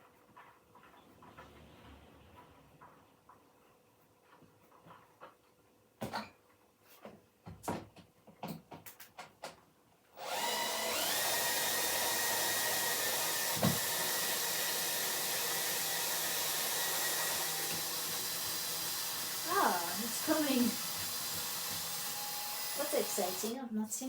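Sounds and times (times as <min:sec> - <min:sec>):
electric motor humming: 0:10.2 - 0:23.6.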